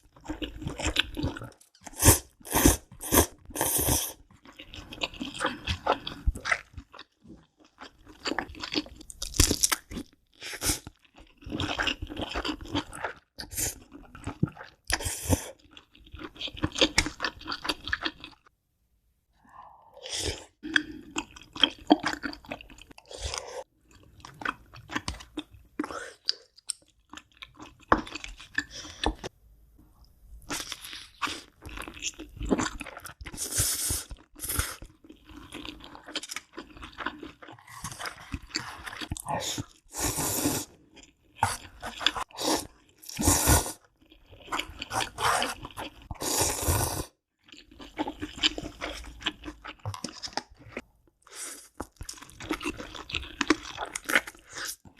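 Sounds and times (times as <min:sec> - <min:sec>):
crunchy chewing: 0:51.7 - 0:54.9.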